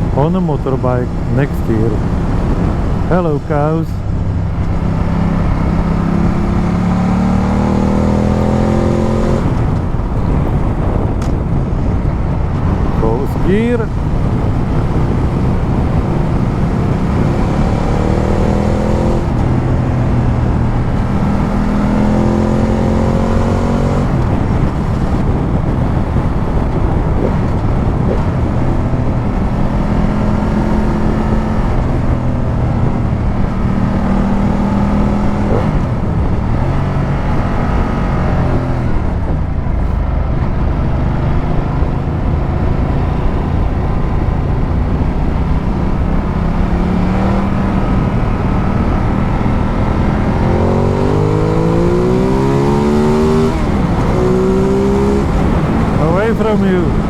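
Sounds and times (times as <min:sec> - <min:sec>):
motorcycle engine revving: 0:00.0 - 0:57.0
wind and road noise: 0:00.0 - 0:57.0.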